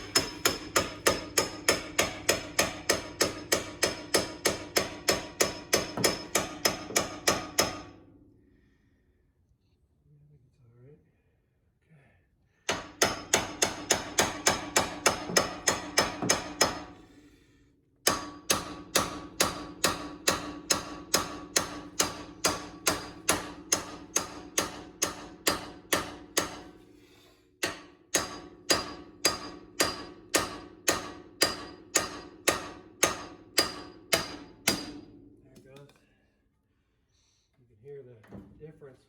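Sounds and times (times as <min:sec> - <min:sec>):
hammer ringing on steel: 0:00.0 - 0:08.0, 0:18.1 - 0:26.7, 0:27.6 - 0:35.1.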